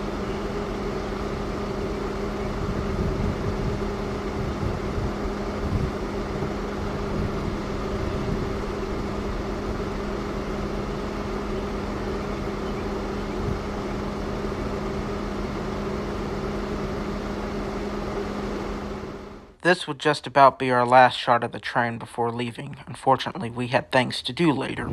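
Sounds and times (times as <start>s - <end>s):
vehicle engine humming: 0.0s - 19.6s, 24.6s - 24.9s.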